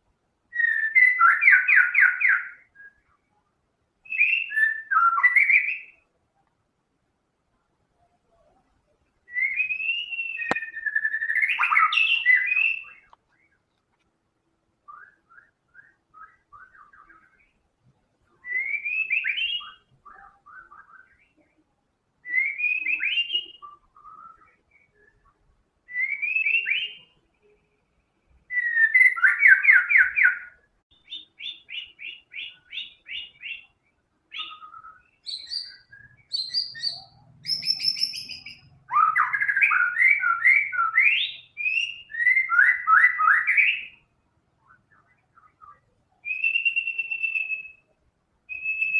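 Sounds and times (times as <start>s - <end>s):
bird singing whistled phrases: 0.5s - 3.3s, 4.0s - 6.1s, 9.2s - 13.6s, 14.9s - 17.6s, 18.4s - 21.4s, 22.2s - 27.6s, 28.5s - 48.9s.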